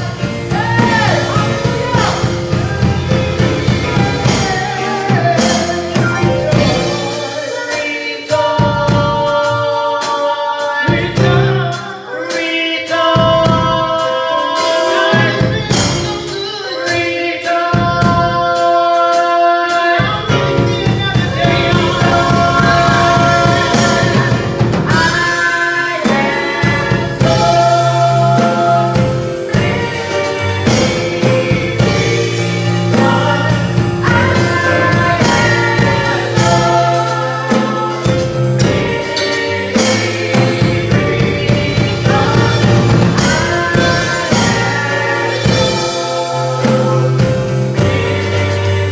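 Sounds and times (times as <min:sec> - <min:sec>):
steady bass line: 0:00.0 - 0:07.5, 0:20.4 - 0:48.9
drums: 0:00.0 - 0:48.9
gospel choir singing: 0:00.0 - 0:48.9.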